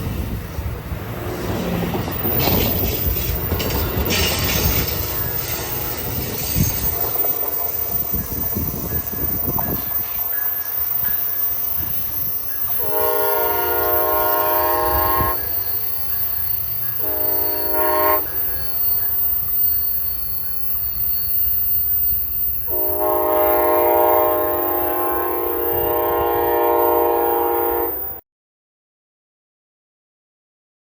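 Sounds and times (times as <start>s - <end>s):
train rumble: 0.0s - 28.2s
locomotive air horn blasts: 4.8s - 6.2s, 12.7s - 15.7s, 17.0s - 18.8s, 22.7s - 28.2s.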